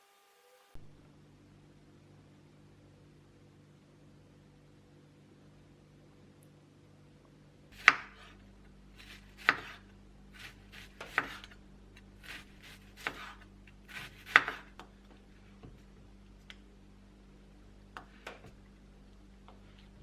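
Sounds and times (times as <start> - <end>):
knife chopping on cutting board: 7.8 - 8.4, 9.0 - 9.8, 10.4 - 11.6, 12.2 - 14.9.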